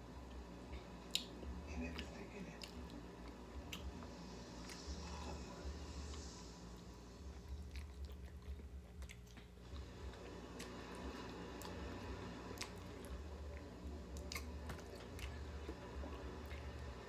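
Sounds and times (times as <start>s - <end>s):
person chewing meat: 0.3s - 17.0s
wet mouth clicks and smacks: 1.1s - 1.4s.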